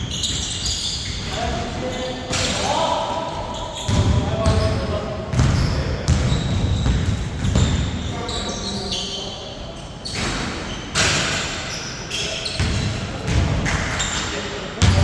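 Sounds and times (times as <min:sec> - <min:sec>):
basketball bouncing on hard court: 0:05.3 - 0:07.8, 0:14.8 - 0:15.0
players' voices: 0:14.3 - 0:15.0.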